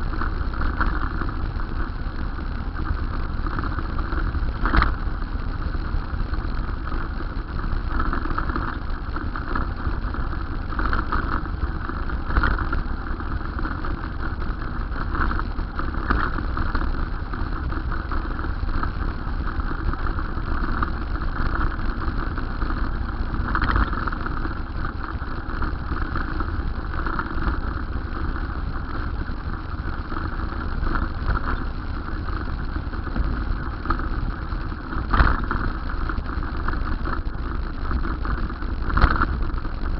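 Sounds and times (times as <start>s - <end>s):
road noise: 0.0s - 39.9s
traffic: 0.0s - 39.9s.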